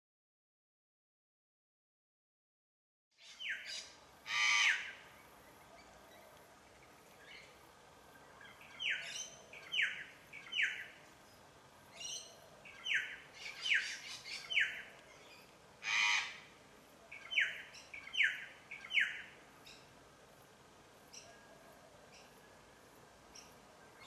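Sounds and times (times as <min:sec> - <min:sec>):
harsh bird call: 0:15.8 - 0:16.5.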